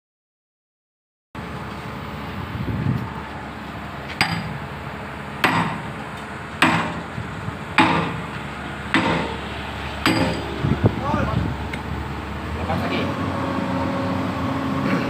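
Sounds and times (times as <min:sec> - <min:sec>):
heavy hammer striking steel: 0:04.2 - 0:04.6, 0:05.4 - 0:06.0, 0:06.6 - 0:07.2, 0:07.8 - 0:10.6.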